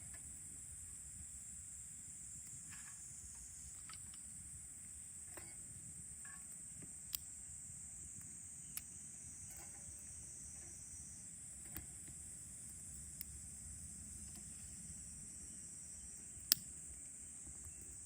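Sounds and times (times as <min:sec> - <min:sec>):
insects chirping: 0:00.0 - 0:18.0
sharp clicks: 0:16.5 - 0:16.7.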